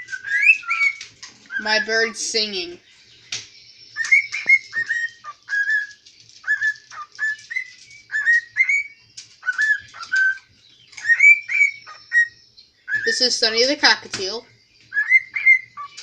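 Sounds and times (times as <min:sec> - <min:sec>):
cockatiel whistling: 0:00.0 - 0:02.3, 0:03.9 - 0:13.2, 0:14.9 - 0:16.0.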